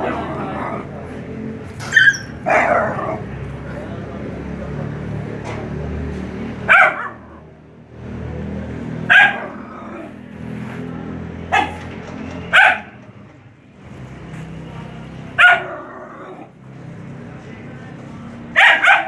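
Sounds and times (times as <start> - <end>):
dog barking: 1.9 - 3.4, 6.6 - 7.5, 8.9 - 10.1, 11.5 - 13.0, 15.3 - 16.5, 18.5 - 19.0.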